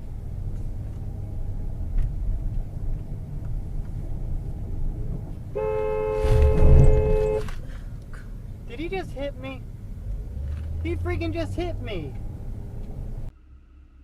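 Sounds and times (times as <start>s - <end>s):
road and engine rumble: 0.0s - 14.0s
two-tone car horn: 5.5s - 7.6s
heavy low thump of impact: 6.2s - 7.4s.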